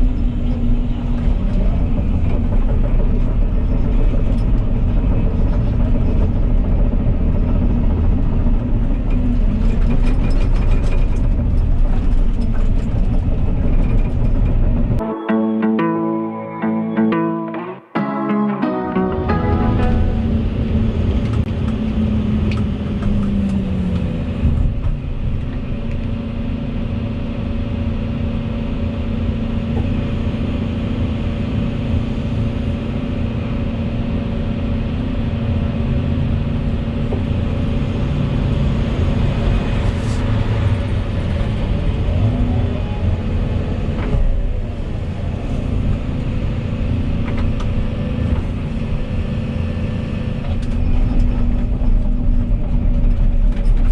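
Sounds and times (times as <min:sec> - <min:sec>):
excavator diesel engine running: 0:00.0 - 0:53.9
falling tone: 0:15.0 - 0:21.5.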